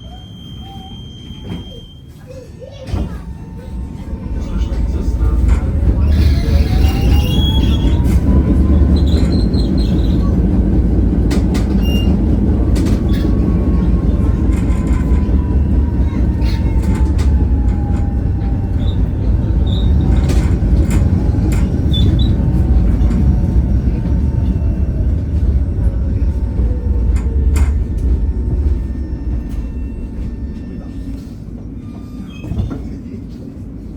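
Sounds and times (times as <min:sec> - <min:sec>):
high wheel squeals: 0:00.0 - 0:10.6, 0:11.6 - 0:23.2, 0:26.8 - 0:33.0
tram rumbling: 0:00.0 - 0:33.9
wheel-on-rail clacks: 0:04.4 - 0:30.4.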